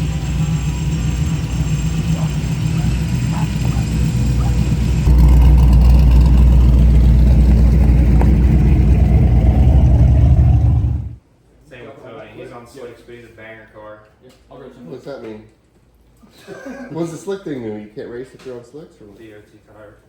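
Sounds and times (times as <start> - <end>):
car engine rumbling: 0.0 - 11.2.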